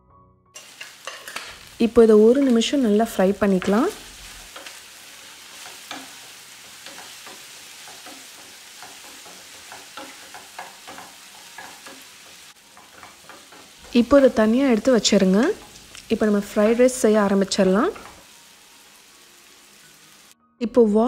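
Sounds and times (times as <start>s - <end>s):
wooden spatula scraping a pan: 0.6s - 2.8s, 3.4s - 16.8s
paneer sizzling in hot oil: 0.6s - 20.4s.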